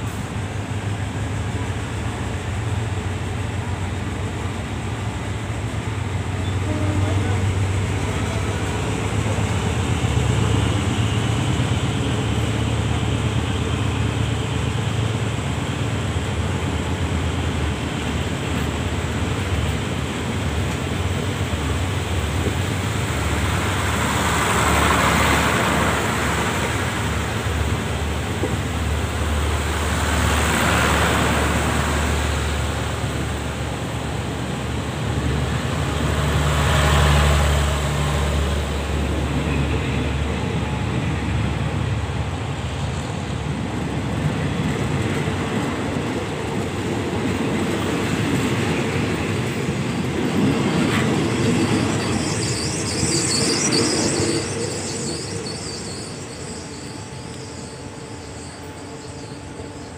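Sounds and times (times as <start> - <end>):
locomotive engine rumble: 0.0 - 59.9
rail and wheel noise: 0.0 - 59.9.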